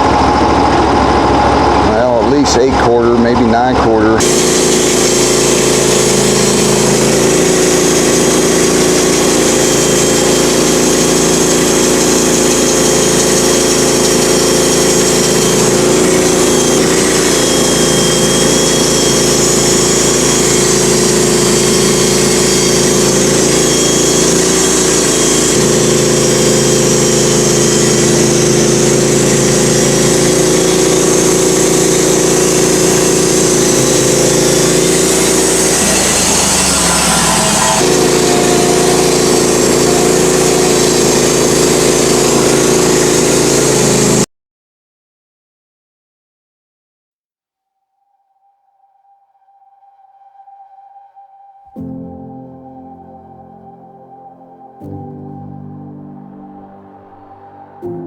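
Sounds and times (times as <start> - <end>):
sawmill engine running: 0.0 - 44.3.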